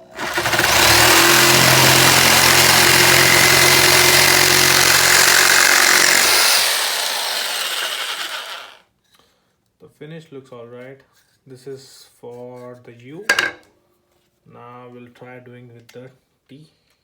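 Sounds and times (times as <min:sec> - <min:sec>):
electric jigsaw cutting wood: 0:00.0 - 0:08.8.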